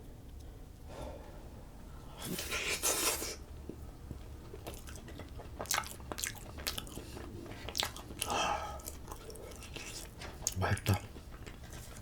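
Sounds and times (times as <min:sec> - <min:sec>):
crunchy chewing: 0:04.1 - 0:12.0.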